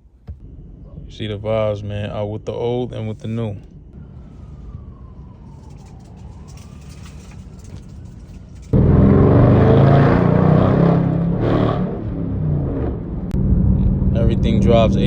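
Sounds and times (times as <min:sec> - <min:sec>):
car engine and exhaust roaring: 0:00.0 - 0:15.0
faint siren wail: 0:03.8 - 0:13.3.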